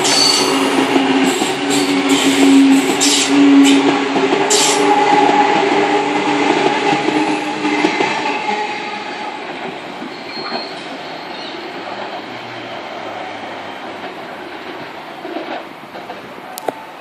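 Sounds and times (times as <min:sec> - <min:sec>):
electric train passing: 0:00.0 - 0:17.0.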